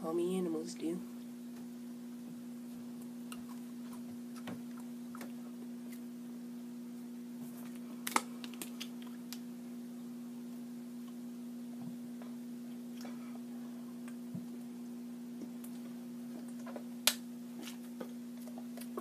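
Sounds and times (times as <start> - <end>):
low hum: 0.0 - 19.0
person chewing with crunches: 3.3 - 6.1, 17.5 - 19.0.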